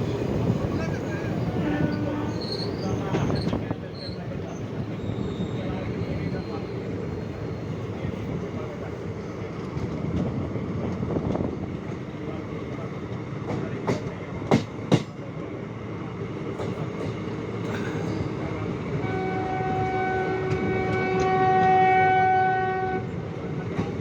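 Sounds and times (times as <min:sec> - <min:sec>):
train wheels clacking over rail joints: 0:13.1 - 0:15.3
train horn long note: 0:19.0 - 0:23.2.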